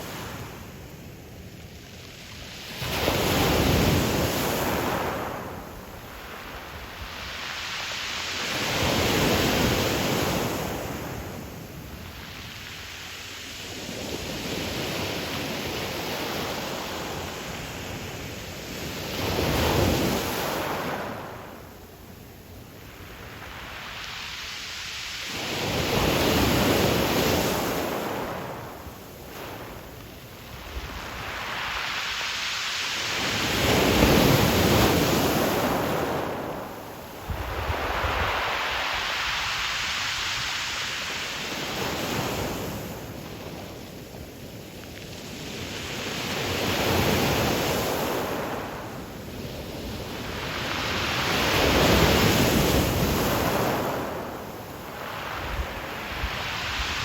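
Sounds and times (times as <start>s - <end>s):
waves washing up a pebble beach: 0.0s - 21.6s, 22.8s - 57.0s
deep rumble of surf: 0.0s - 57.0s.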